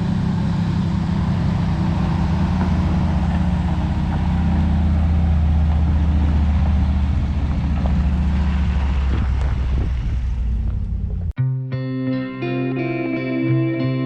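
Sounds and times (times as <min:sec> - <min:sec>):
diesel engine droning: 0:00.0 - 0:11.4.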